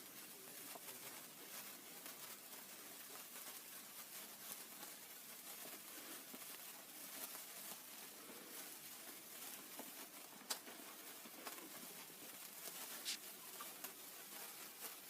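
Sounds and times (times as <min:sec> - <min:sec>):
sparkler fizzing and crackling: 0:09.8 - 0:13.9.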